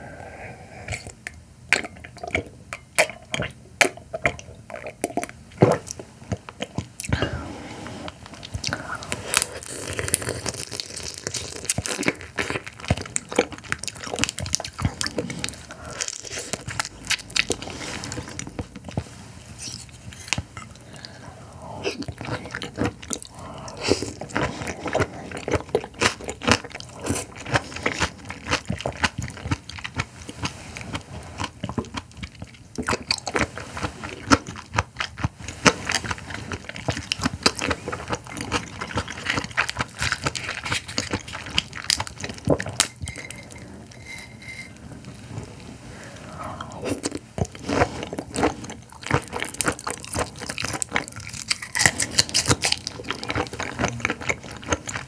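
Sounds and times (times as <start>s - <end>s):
wet chewing and biting: 8.4s - 19.0s, 21.9s - 43.4s, 46.8s - 55.0s.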